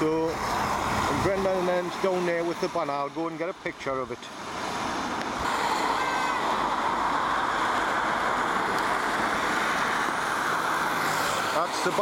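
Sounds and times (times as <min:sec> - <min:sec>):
torrential rain hissing: 0:00.0 - 0:02.8, 0:04.3 - 0:12.0.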